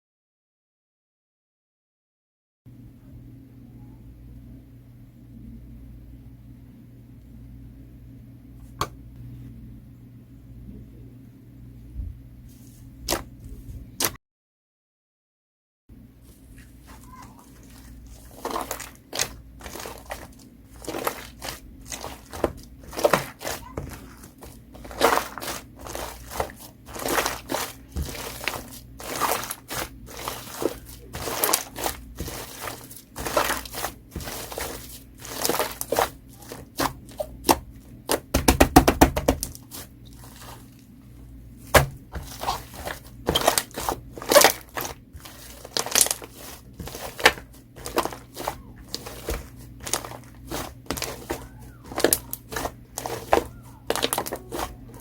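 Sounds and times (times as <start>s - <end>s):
slime squished crackling and popping: 17.6s - 40.7s, 41.7s - 55.0s.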